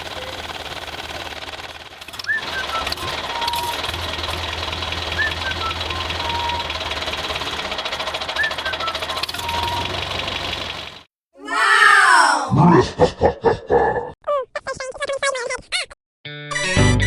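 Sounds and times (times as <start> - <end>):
toy motor and gears clattering: 0.0 - 11.0.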